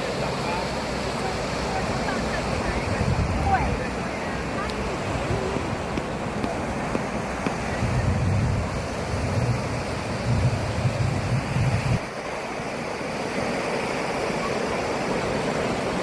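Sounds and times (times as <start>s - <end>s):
sea waves washing on shore: 0.0s - 16.0s
wind buffeting microphone: 1.7s - 12.2s.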